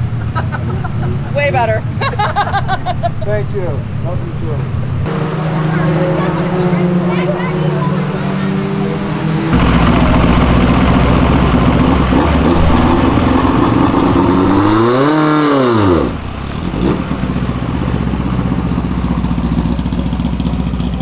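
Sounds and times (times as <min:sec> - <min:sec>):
race car engine revving: 0:04.6 - 0:21.0.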